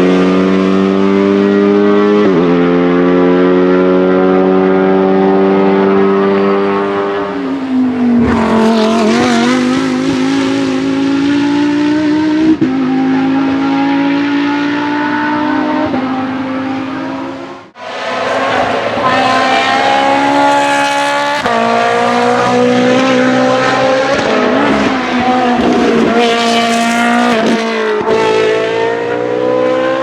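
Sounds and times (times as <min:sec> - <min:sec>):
race car engine running hard: 0:13.7 - 0:29.4.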